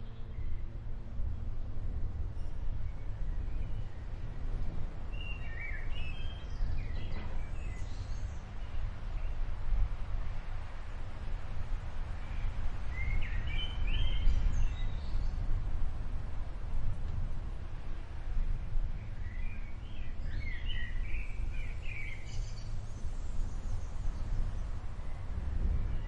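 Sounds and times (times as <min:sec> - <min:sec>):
small birds chirping: 0:19.0 - 0:26.0.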